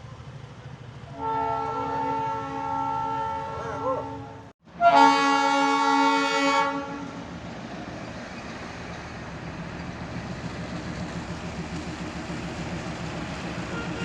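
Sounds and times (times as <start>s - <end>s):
locomotive engine rumble: 0.0s - 4.5s, 6.7s - 14.0s
locomotive horn chord: 1.1s - 7.2s, 13.6s - 14.0s.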